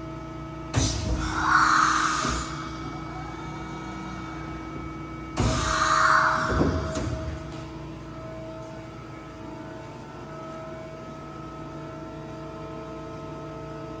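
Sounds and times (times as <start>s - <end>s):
machining center humming: 0.2s - 11.6s
steady whining tones: 0.7s - 9.6s.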